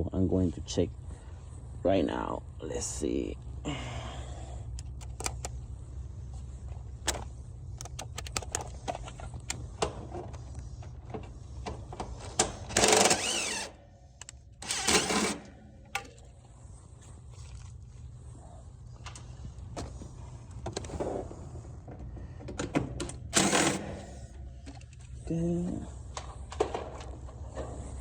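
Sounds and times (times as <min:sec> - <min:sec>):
steady low hum: 0:00.0 - 0:28.0
small power tool motor: 0:12.7 - 0:13.8, 0:14.6 - 0:15.5, 0:23.4 - 0:24.1.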